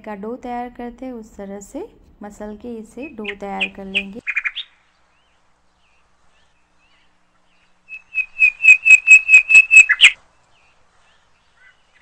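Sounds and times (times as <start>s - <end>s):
bird calling in short high notes: 7.9s - 10.2s.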